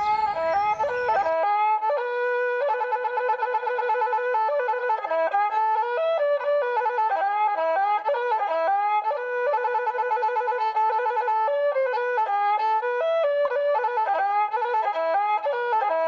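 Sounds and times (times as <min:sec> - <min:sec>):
woodwind melody with trills: 0:00.0 - 0:01.4.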